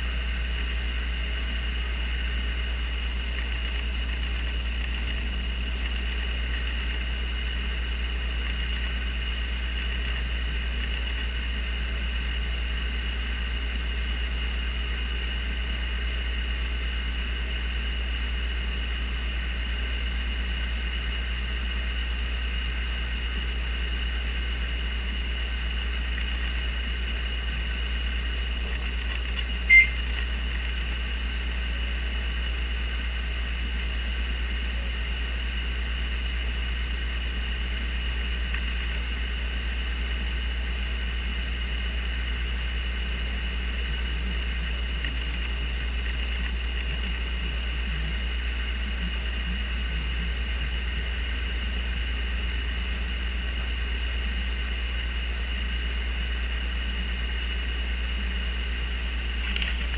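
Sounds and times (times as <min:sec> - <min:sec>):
faint high whine: 0:00.0 - 0:59.9
low humming drone: 0:00.0 - 0:59.9
short high chirp: 0:29.6 - 0:30.2.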